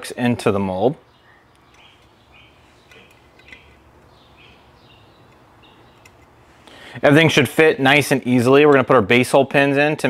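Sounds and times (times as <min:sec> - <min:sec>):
faint bird chirps: 0:01.0 - 0:06.2.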